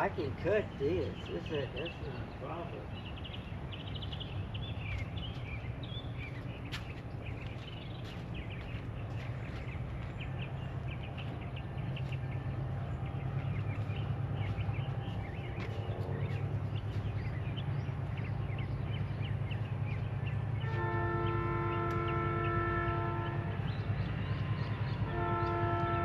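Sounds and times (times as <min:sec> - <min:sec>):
steady low rumble: 0:00.0 - 0:20.7
birds chirping and twittering: 0:00.0 - 0:26.0.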